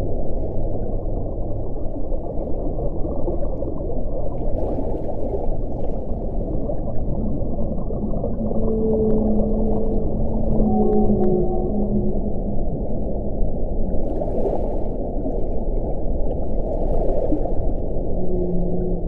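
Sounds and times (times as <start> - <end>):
low moaning tone: 6.0 - 14.0, 17.8 - 19.0.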